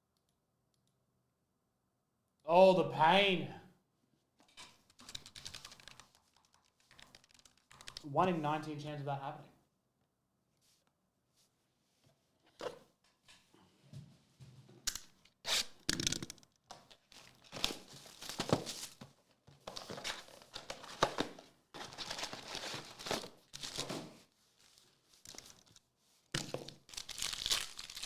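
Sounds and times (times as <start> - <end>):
foil wrappers tearing and crinkling: 26.4 - 28.0.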